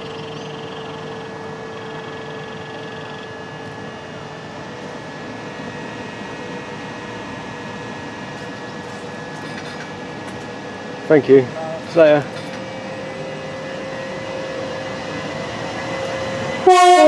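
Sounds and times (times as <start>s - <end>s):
electric train humming: 0.0s - 17.0s.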